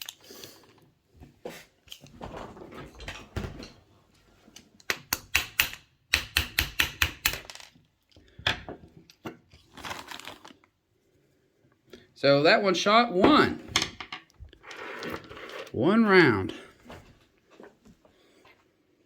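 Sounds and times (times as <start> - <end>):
screwdriver tapping metal: 5.0 - 7.5.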